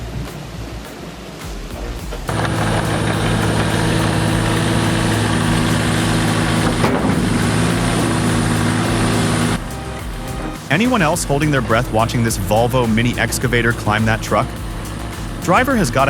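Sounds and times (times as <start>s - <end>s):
mini excavator diesel engine running: 2.3s - 16.0s.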